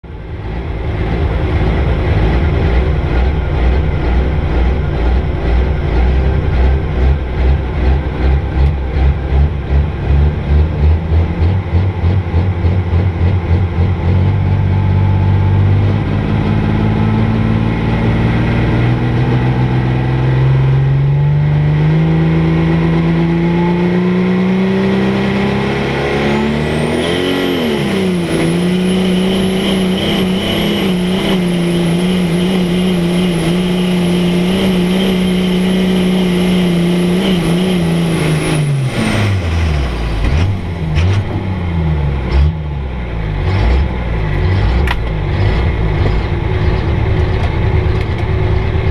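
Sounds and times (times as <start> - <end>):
diesel truck engine revving: 0.0 - 48.9
high turbo whistle: 26.5 - 40.2.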